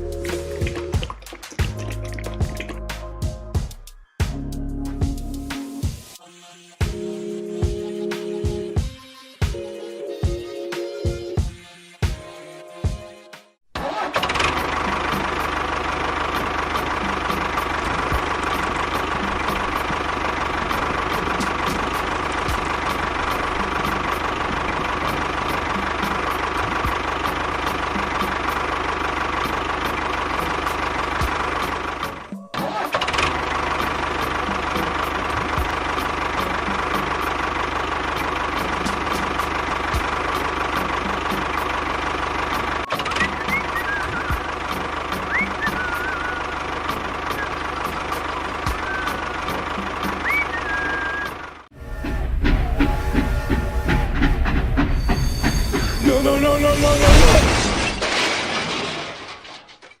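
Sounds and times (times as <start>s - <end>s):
tractor engine idling: 13.8s - 57.4s.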